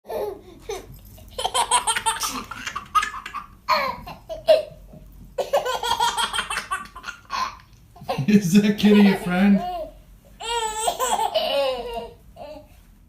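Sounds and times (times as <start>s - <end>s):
young child laughing: 0.1s - 4.8s.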